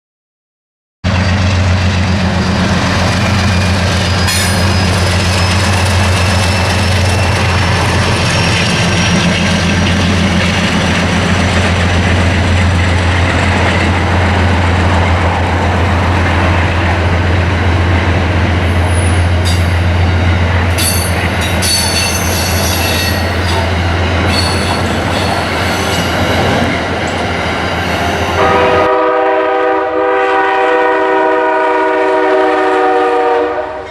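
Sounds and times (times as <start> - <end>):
locomotive drone: 1.1 - 30.2
rolling train cars: 1.1 - 33.9
train wheel squeals: 1.2 - 10.9, 18.7 - 28.4
multi-note train horn: 28.3 - 33.9.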